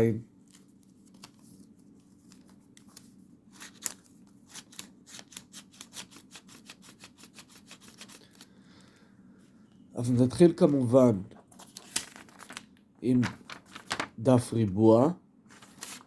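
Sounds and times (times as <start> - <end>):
faint steady hum: 0.0 - 16.0
paper crisp ticks and rustles: 0.4 - 8.5, 11.4 - 14.5, 15.5 - 16.0.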